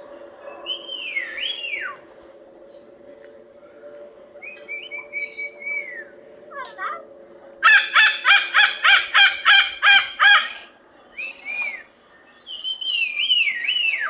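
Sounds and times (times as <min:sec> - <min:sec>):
macaw squawking: 0:07.6 - 0:10.7.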